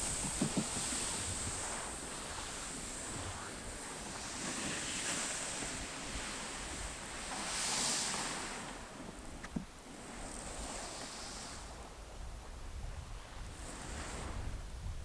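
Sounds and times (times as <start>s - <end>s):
sea waves washing on shore: 0.0s - 11.9s
wind: 0.0s - 15.0s.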